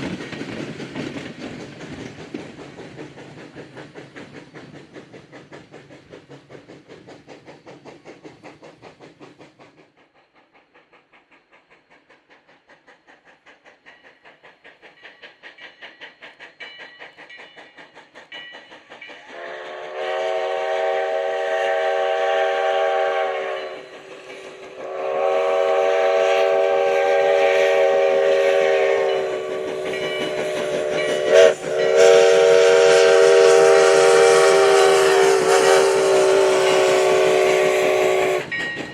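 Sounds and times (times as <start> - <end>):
steam locomotive exhaust chuff: 0.0 - 38.9
chime steam whistle blasts: 19.2 - 38.8.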